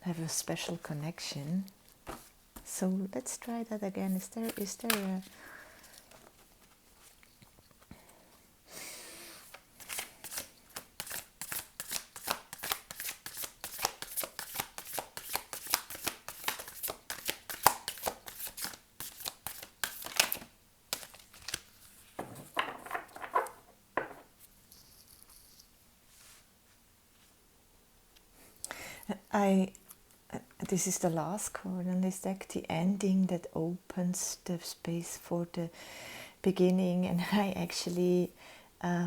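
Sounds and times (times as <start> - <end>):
soft card handling: 4.0 - 7.9, 9.4 - 22.2
cards being shuffled: 4.1 - 5.4, 9.4 - 22.2.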